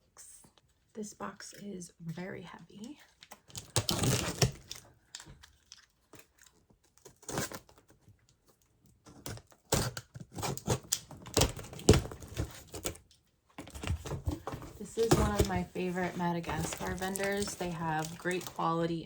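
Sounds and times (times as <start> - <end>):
tape tearing: 3.2 - 8.0, 9.1 - 13.1, 13.7 - 19.0
packing material crinkling: 13.6 - 19.0.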